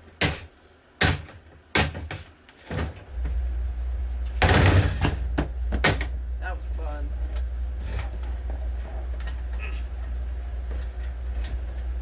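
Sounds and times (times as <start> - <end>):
low steady hum: 0.0 - 12.0
plastic fan being smashed: 0.2 - 3.0, 4.4 - 6.1.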